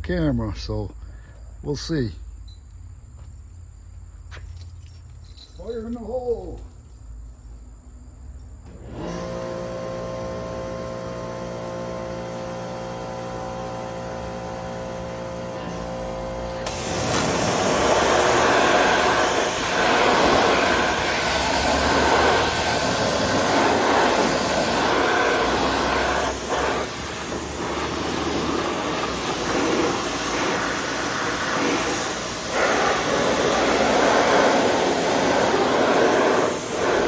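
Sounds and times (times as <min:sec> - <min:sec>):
pressure washer spraying water: 0:08.7 - 0:37.0
pump humming: 0:08.7 - 0:37.0.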